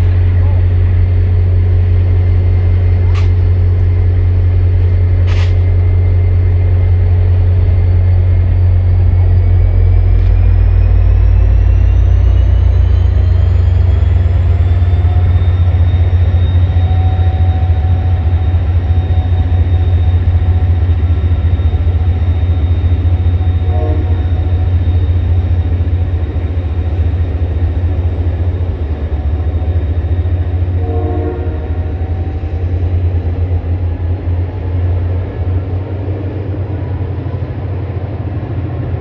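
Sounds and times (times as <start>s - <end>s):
diesel train rumbling: 0.0s - 39.0s
train horn toots: 23.1s - 25.1s, 30.5s - 32.4s.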